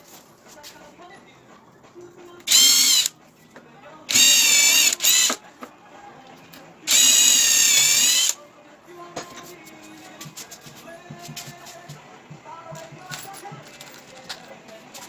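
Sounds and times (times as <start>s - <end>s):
power tool motor whining: 2.5s - 3.1s, 4.1s - 5.4s, 6.9s - 8.4s
faint clicks and handling noises: 12.8s - 15.0s.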